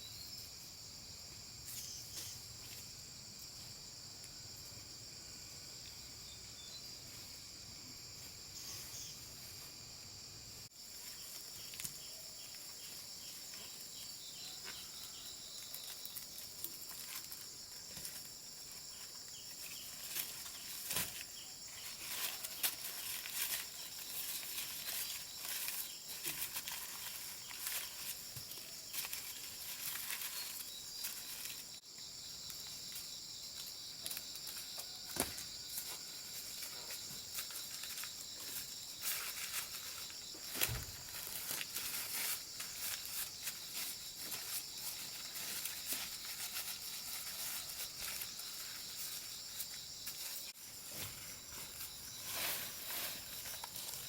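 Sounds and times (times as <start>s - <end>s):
high-pitched insect chorus: 0.0s - 54.0s
rustling: 10.8s - 31.8s, 32.5s - 54.0s.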